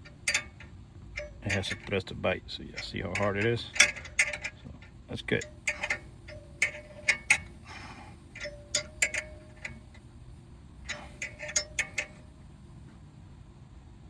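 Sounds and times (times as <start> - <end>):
hand ratchet clicking: 0.0 - 10.0, 10.9 - 12.3.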